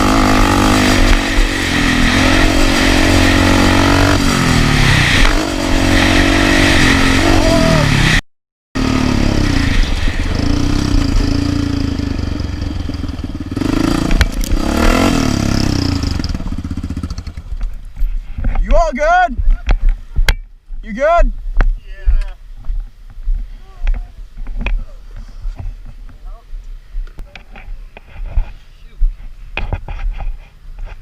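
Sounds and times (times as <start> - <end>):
off-road vehicle engine revving: 0.0 - 8.2, 8.8 - 17.6.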